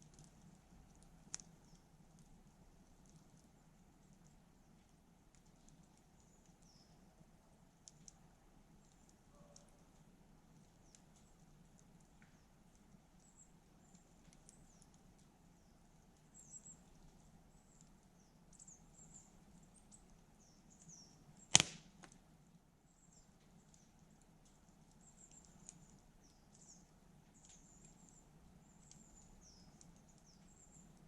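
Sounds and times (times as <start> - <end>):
campfire crackling: 0.0 - 31.0
sharp pop from burning wood: 21.4 - 22.2.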